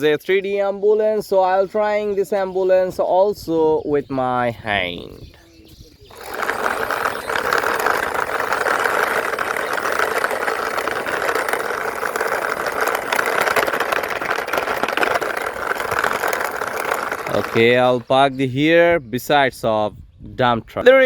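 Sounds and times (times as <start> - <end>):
toy ambulance running noise: 6.0 - 18.1.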